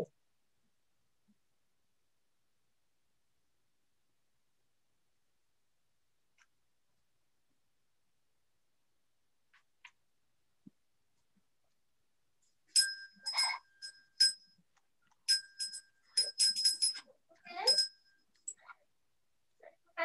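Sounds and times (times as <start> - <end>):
small metal bell ringing: 12.7 - 14.6, 15.3 - 18.6.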